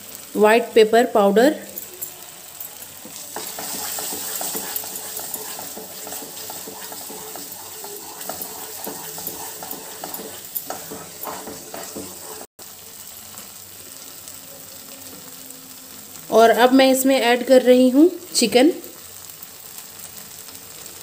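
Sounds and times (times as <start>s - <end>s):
gravy sizzling: 0.0s - 21.0s
wooden spatula scraping: 3.0s - 12.6s.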